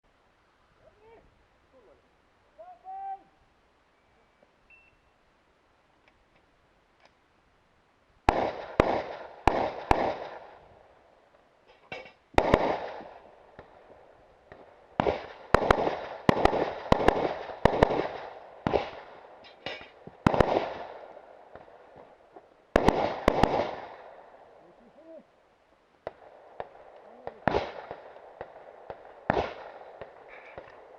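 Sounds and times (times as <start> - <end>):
rifle shots with echo: 8.3 - 10.6, 11.9 - 13.9, 14.5 - 22.1, 22.7 - 24.5, 26.0 - 30.9.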